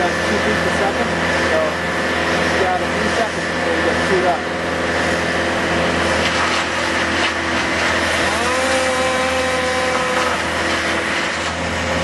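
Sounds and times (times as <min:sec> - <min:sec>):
woodchipper running loudly: 0:00.0 - 0:12.0
woodchipper whining tone: 0:00.0 - 0:12.0.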